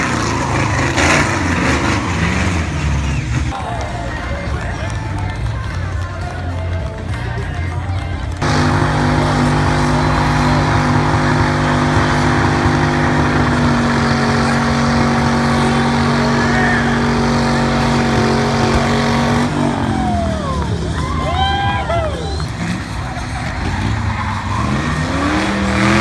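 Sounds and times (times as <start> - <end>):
car engine revving high: 0.0 - 3.6, 8.3 - 26.0
tyres squealing: 7.6 - 26.0.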